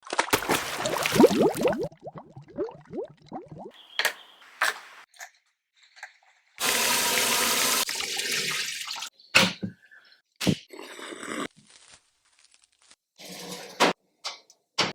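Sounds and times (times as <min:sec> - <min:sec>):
water running from tap: 0:00.4 - 0:01.9, 0:06.6 - 0:09.1.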